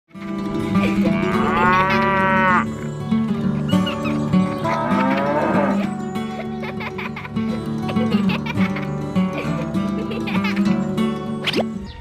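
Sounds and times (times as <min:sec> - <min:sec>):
background music: 0:00.2 - 0:12.0
cow mooing: 0:00.9 - 0:02.9, 0:04.6 - 0:06.1.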